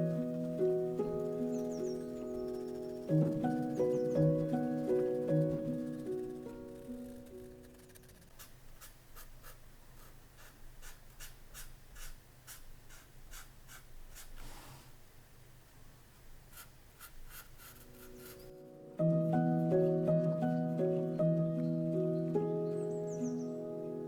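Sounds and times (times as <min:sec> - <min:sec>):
soft piano music: 0:00.0 - 0:08.3, 0:17.7 - 0:24.0
pen nib scratching on paper: 0:01.1 - 0:15.0, 0:16.4 - 0:18.6.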